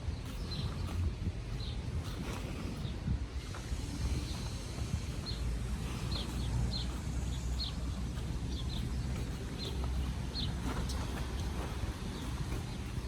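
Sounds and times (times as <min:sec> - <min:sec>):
steady low rumble: 0:00.0 - 0:13.0
small bird chirping: 0:03.9 - 0:13.0.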